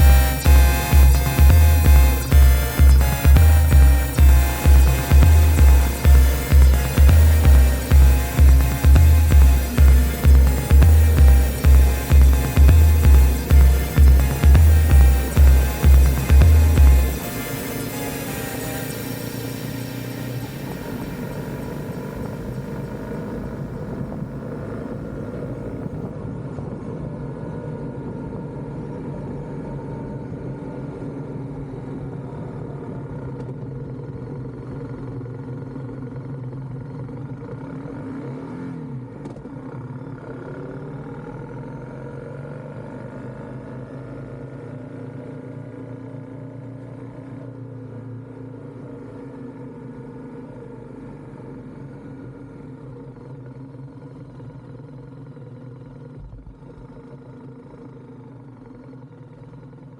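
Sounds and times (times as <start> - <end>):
motorcycle engine running: 0.0 - 26.1.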